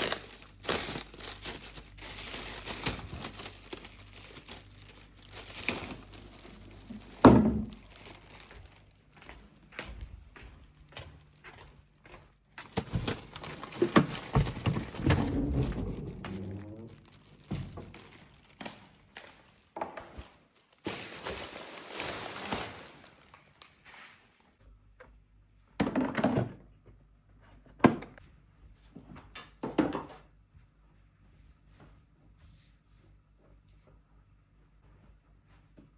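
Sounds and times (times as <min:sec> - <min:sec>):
objects knocking and thunking: 0:00.0 - 0:08.5, 0:12.6 - 0:21.5, 0:25.8 - 0:26.7
rustling and scraping: 0:00.0 - 0:10.0, 0:10.8 - 0:24.4.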